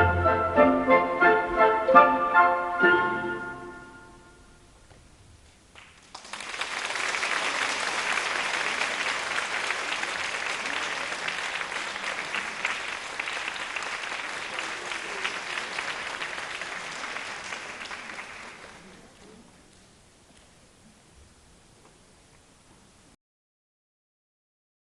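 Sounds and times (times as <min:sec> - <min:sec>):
music: 0:00.0 - 0:04.7
audience applauding: 0:05.7 - 0:19.5.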